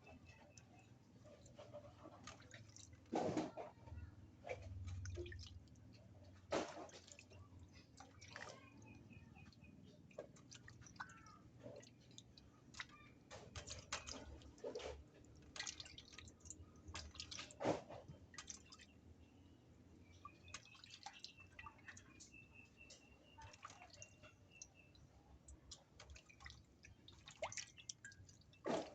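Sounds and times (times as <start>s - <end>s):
water splashing: 4.4s - 19.0s, 25.5s - 28.9s.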